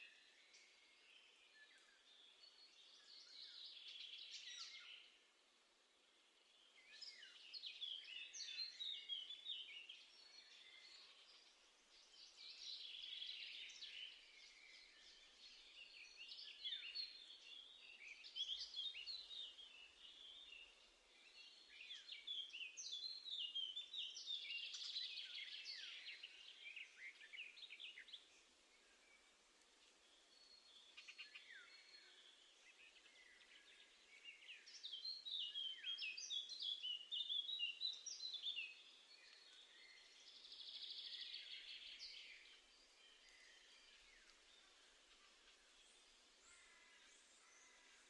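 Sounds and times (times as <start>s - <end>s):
faint songbirds chirping: 0.0s - 48.0s.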